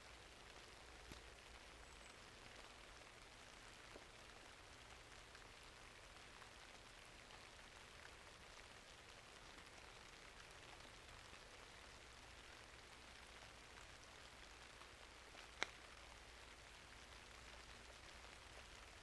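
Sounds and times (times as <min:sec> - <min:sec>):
faint steady rainfall: 0:00.0 - 0:19.0
small ticks and crackles: 0:00.0 - 0:19.0.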